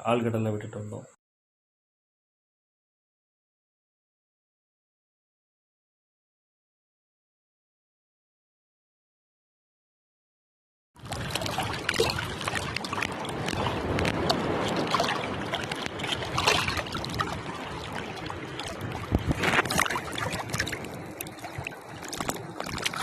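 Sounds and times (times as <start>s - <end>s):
wind: 0.0s - 1.2s, 11.0s - 23.0s
seawater splashing: 11.0s - 23.0s
waves: 11.0s - 23.0s.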